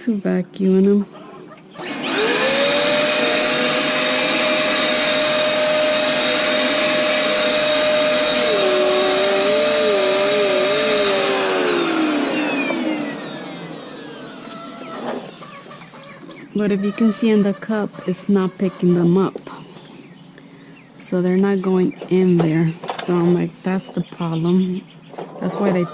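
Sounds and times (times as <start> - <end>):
vacuum cleaner motor whining: 1.6 - 15.9.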